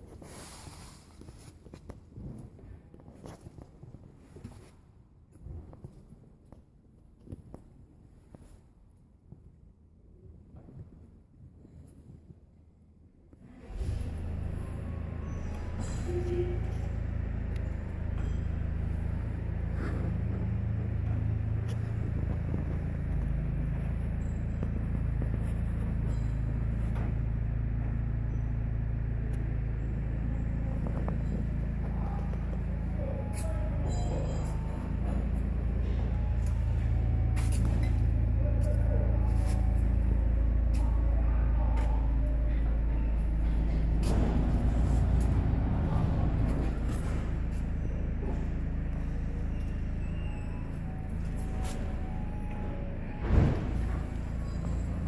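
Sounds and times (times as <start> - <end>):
car engine idling: 13.5 - 55.0.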